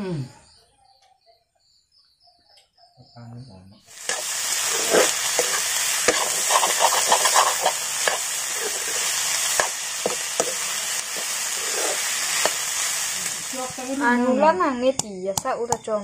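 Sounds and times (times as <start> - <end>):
food sizzling in hot oil: 3.9 - 14.6
spatula scraping pan: 4.0 - 13.8.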